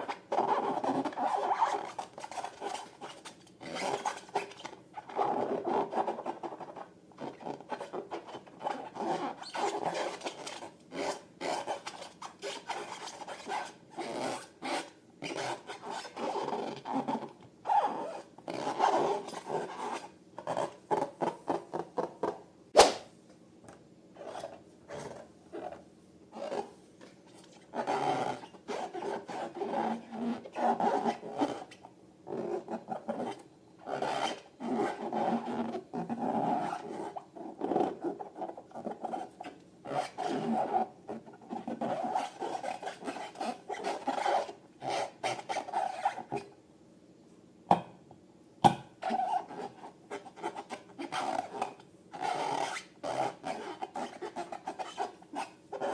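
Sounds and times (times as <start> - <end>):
balloon rubber squeaking: 0.0 - 23.0, 24.2 - 26.7, 27.3 - 46.5, 49.0 - 55.9
balloon snapping: 22.8 - 23.1.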